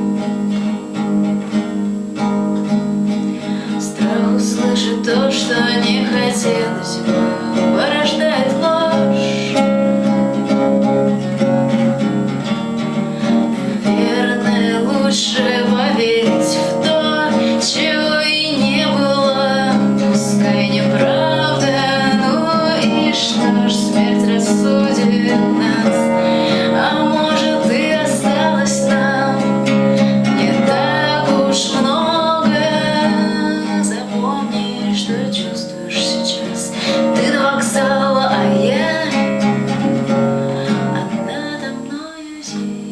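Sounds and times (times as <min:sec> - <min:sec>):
acoustic guitar strummed and picked: 0:00.0 - 0:42.9.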